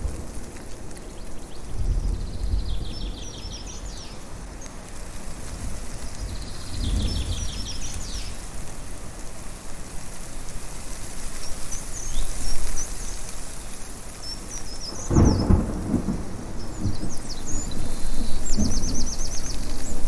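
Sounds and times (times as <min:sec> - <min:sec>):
thunder rumbling: 0:00.0 - 0:04.0, 0:05.6 - 0:08.2, 0:14.8 - 0:20.0
wind hiss: 0:00.0 - 0:20.0
birds chirping: 0:14.2 - 0:20.0.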